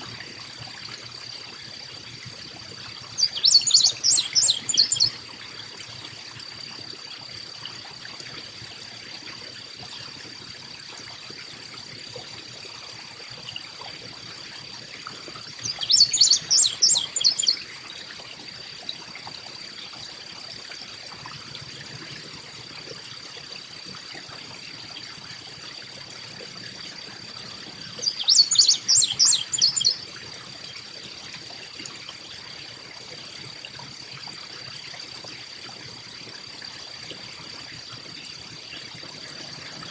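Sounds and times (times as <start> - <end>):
chickadee calling: 3.2 - 5.2, 15.6 - 17.6, 28.0 - 30.0.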